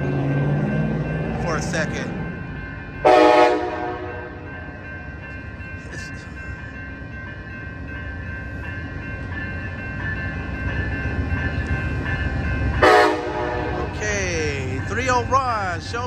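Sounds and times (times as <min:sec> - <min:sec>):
train horn blast: 0:03.0 - 0:04.5, 0:12.8 - 0:14.0.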